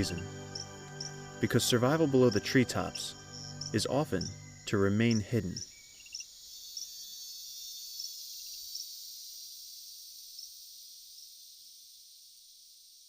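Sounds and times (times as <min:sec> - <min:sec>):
insect chirps: 0:00.0 - 0:13.0
insect chorus high-pitched drone: 0:00.0 - 0:13.0.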